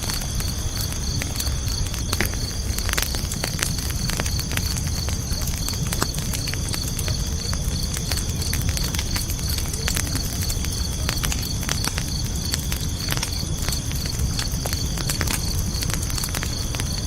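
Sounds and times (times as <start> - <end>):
campfire crackling and popping: 0.0 - 17.0
crickets chirping: 0.0 - 17.0
high insect trill: 0.0 - 17.0.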